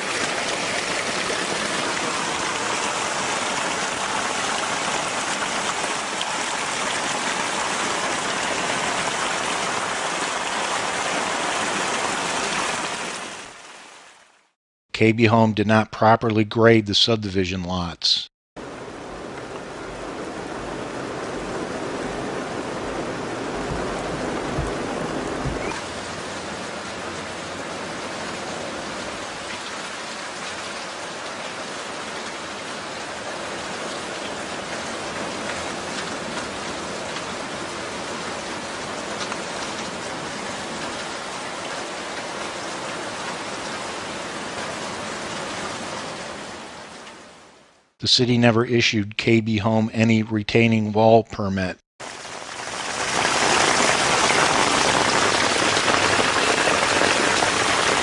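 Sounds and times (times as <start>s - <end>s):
heavy rain: 0.0s - 14.6s, 18.6s - 47.9s, 52.0s - 58.0s
water running off: 52.0s - 58.0s.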